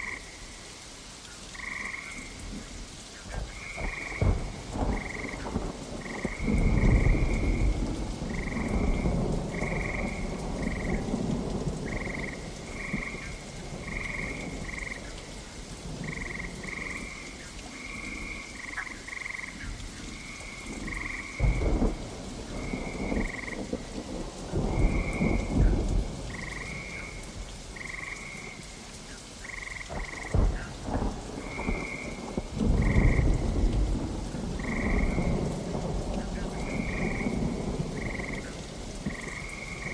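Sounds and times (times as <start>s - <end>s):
frog croaking: 0.0s - 0.6s, 1.5s - 2.4s, 3.3s - 7.7s, 11.9s - 15.3s, 16.0s - 21.7s, 27.8s - 28.6s, 29.4s - 30.8s, 31.4s - 33.4s, 34.6s - 35.4s, 36.4s - 39.9s
steady rain: 0.0s - 39.9s
thunder rumbling: 3.3s - 28.6s, 29.4s - 39.9s.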